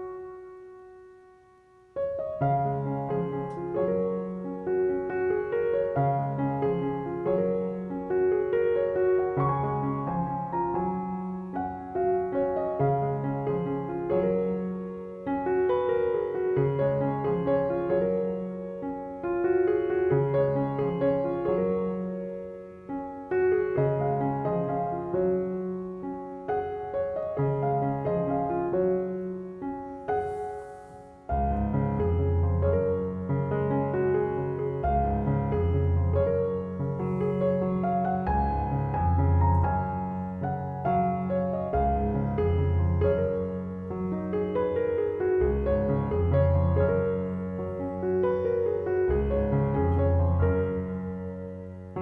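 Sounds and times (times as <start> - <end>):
slow solo piano: 0.0 - 52.0.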